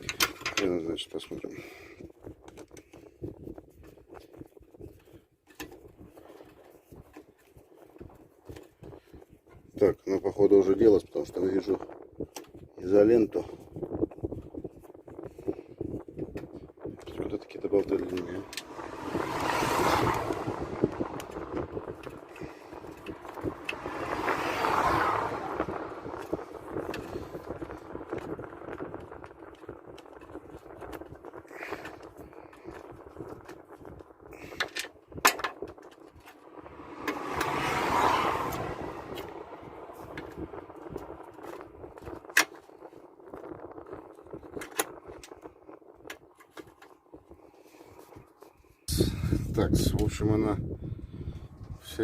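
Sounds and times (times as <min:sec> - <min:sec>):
vehicle passing: 0:17.7 - 0:29.0, 0:36.0 - 0:42.2.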